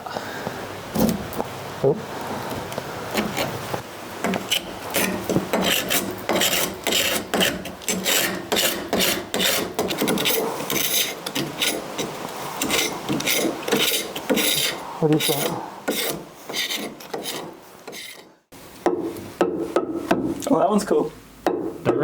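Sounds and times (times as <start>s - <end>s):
paint scraper rasping on wood: 4.2s - 18.4s.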